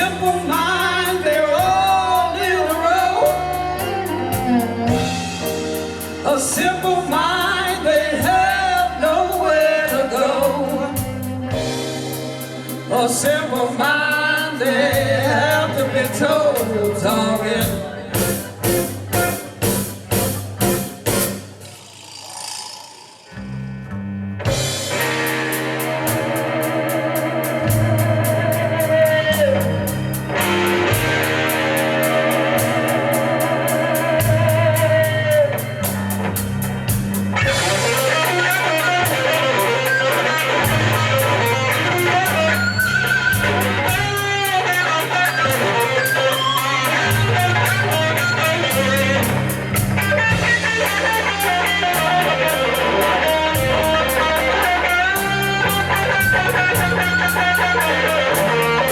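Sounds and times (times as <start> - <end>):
drum kit: 0.0 - 23.4, 24.4 - 58.9
bass line: 0.0 - 58.9
electric guitar lead: 0.0 - 58.9.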